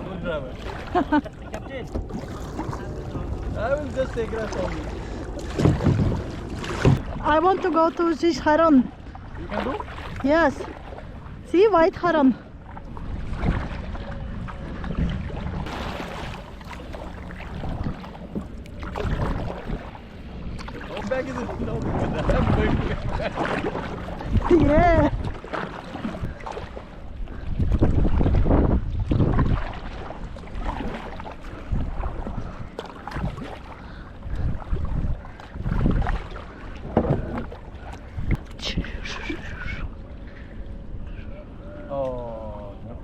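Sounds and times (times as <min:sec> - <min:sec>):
wind rumbling on microphone: 0:00.0 - 0:41.9
paddle splashing in water: 0:00.5 - 0:11.2, 0:12.7 - 0:38.8.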